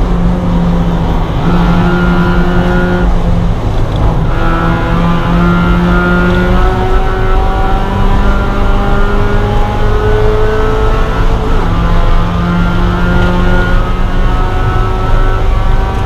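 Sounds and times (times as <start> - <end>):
race car engine under power: 0.0 - 16.0
road and wind noise: 0.0 - 16.0.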